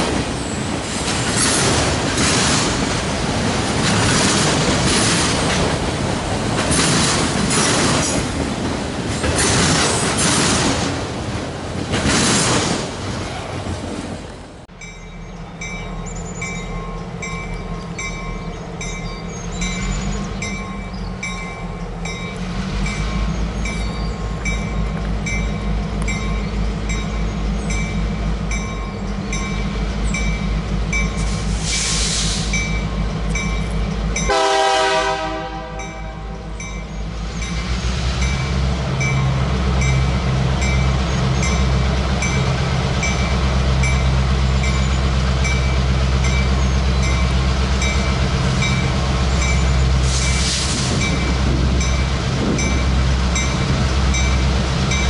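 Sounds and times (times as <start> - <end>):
freight train rumbling past: 0.0 - 55.0
train horn blast: 34.3 - 36.5.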